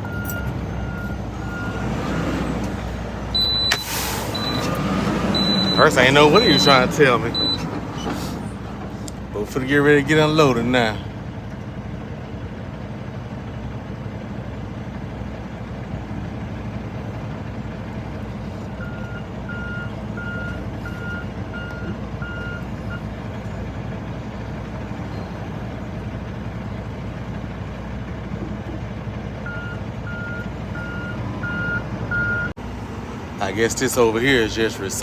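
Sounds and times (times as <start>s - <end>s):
backup alarm beeping: 0.0s - 8.6s, 29.5s - 32.6s
diesel truck engine idling: 0.0s - 35.0s.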